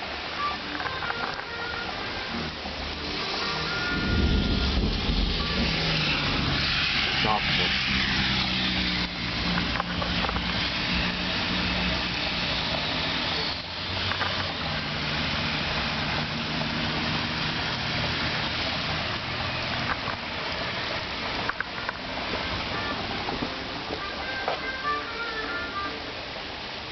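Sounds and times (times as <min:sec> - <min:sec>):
constant rushing noise: 0:00.0 - 0:26.9
vehicle engine humming: 0:00.0 - 0:26.9.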